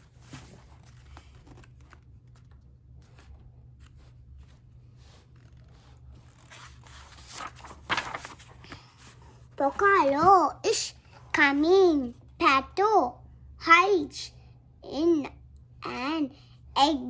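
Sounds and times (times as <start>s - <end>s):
book page rustling: 0.0s - 10.5s
low steady hum: 0.0s - 17.0s.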